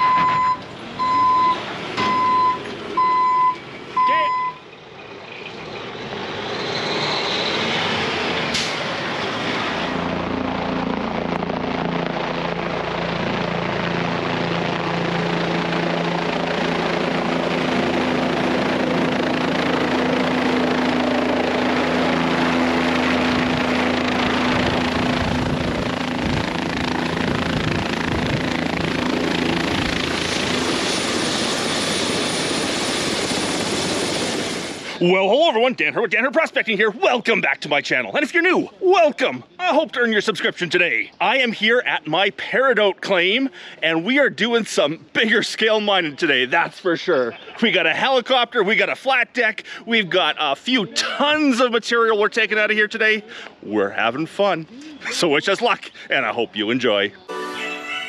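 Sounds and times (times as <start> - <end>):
helicopter rotor thrum: 4.7 - 34.9.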